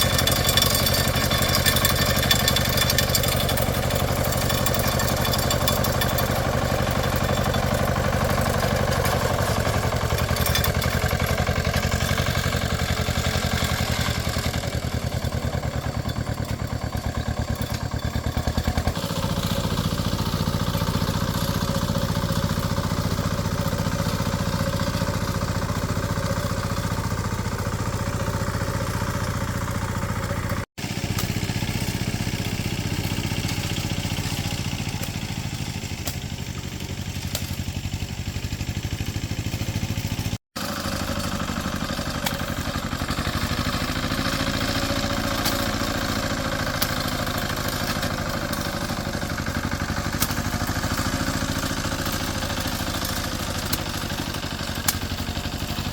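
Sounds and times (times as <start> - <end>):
farm machine engine running: 0.0 - 55.9.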